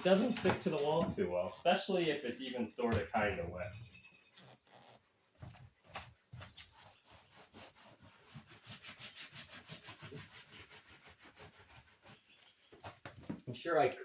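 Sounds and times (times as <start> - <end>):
rubbing against a wall: 3.8 - 13.4.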